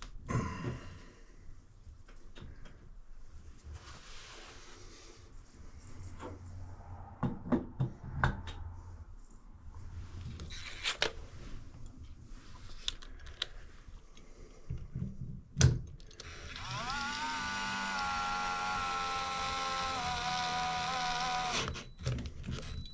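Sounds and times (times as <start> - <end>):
fixture parts and tools clicking: 15.6 - 22.9.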